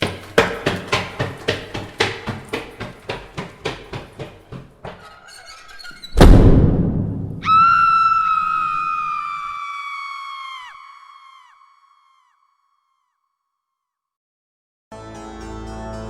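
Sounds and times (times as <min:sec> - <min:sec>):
sharp knocks: 0:00.0 - 0:07.4
deep boom hit: 0:06.2 - 0:07.4.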